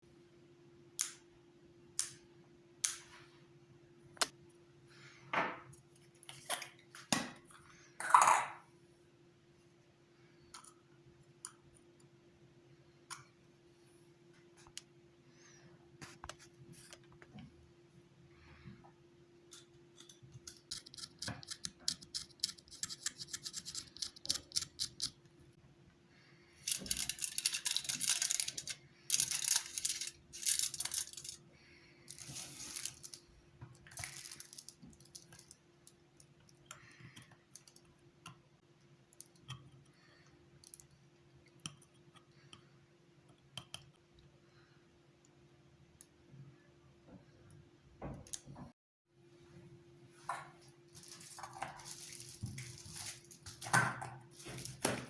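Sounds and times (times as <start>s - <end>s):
knife scraping: 20.0s - 25.1s.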